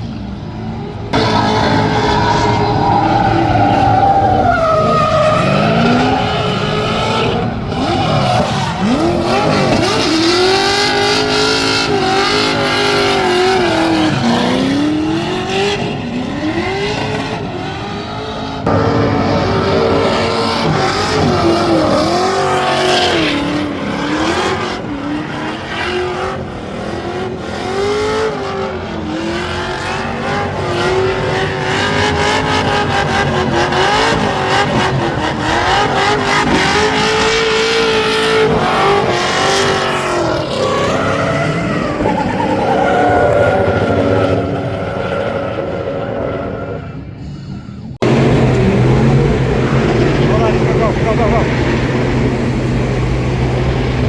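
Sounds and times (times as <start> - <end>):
car engine revving hard: 0.1 - 46.6, 48.0 - 54.0
tyre squeal: 1.2 - 10.3.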